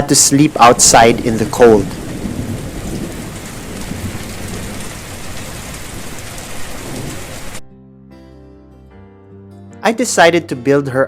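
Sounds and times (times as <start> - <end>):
heavy rain: 0.0 - 7.6
soft guitar music: 7.6 - 11.0.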